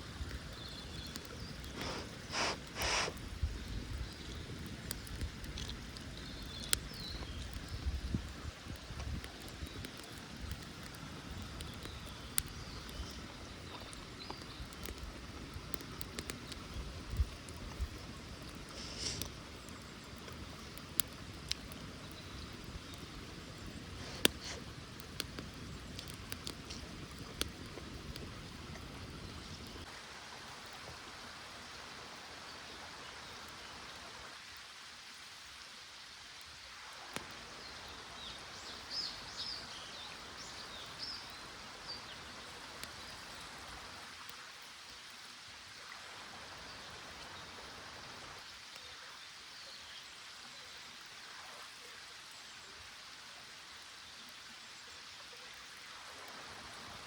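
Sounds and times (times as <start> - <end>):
creek rushing: 1.1 - 3.3, 23.3 - 48.6.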